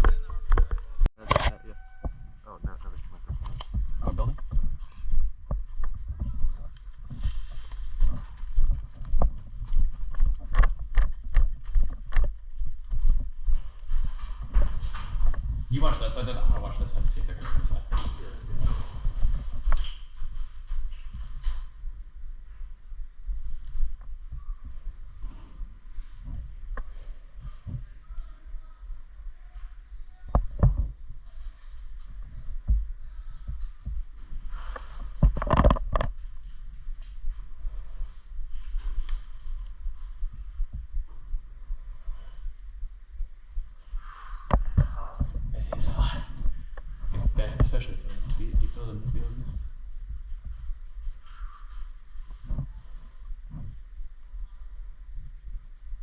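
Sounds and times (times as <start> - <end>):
wind rumble on microphone: 0.0 - 28.4, 30.1 - 31.5, 32.1 - 56.0
footsteps walking: 2.6 - 56.0
thumps and knocks: 34.8 - 36.2.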